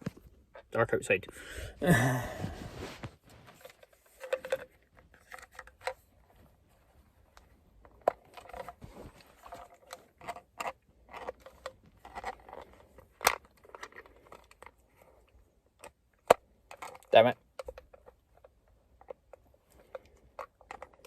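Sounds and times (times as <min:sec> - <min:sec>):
hard plastic clicks and scrapes: 0:07.3 - 0:21.0.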